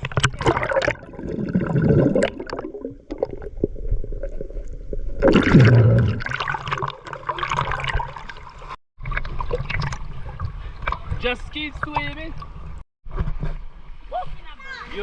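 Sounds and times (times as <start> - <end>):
water gurgling and sloshing: 0.0 - 15.0.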